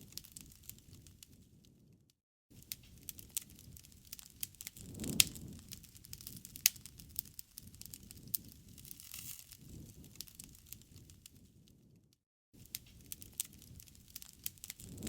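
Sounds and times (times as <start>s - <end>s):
burning wood crackling and popping: 0.0s - 12.0s, 12.6s - 15.0s
low flame rumble: 2.7s - 12.0s, 12.7s - 15.0s.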